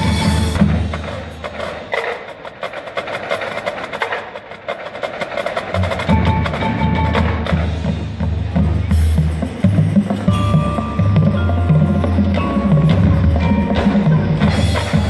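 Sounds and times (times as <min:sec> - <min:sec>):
marching band music: 0:00.0 - 0:15.0
sharp percussion strikes: 0:00.0 - 0:15.0
ringing mallet percussion: 0:08.9 - 0:15.0.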